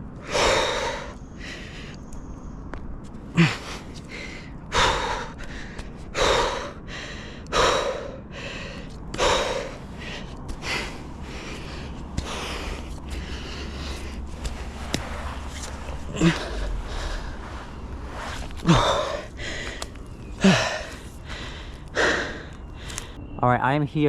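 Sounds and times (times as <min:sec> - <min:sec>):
man breathing hard: 0:00.2 - 0:02.1, 0:03.3 - 0:23.2
man grunting: 0:16.1 - 0:16.7.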